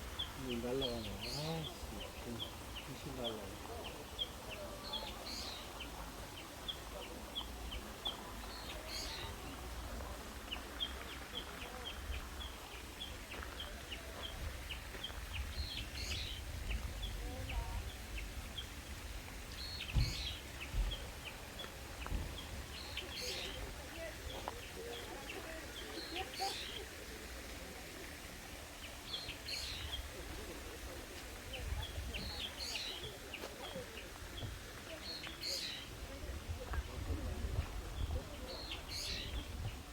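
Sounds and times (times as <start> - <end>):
birds chirping: 0.0 - 9.6, 19.5 - 26.8, 38.0 - 39.8.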